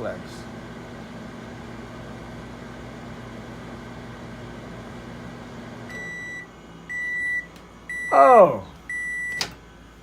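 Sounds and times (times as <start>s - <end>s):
microwave oven humming: 0.0s - 10.0s
microwave beeps: 5.8s - 9.6s.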